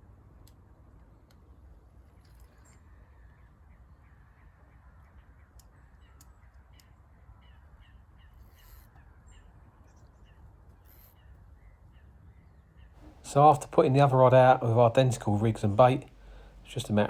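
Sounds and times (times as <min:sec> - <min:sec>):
faint bird chirps: 0:01.6 - 0:13.2.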